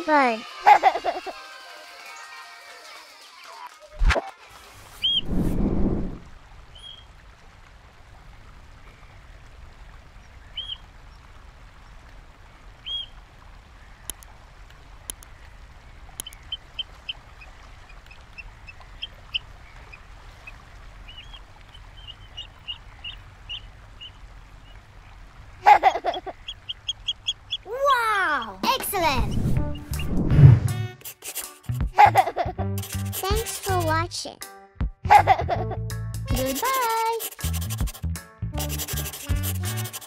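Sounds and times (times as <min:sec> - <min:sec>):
oystercatcher piping calls: 0:26.1 - 0:27.7.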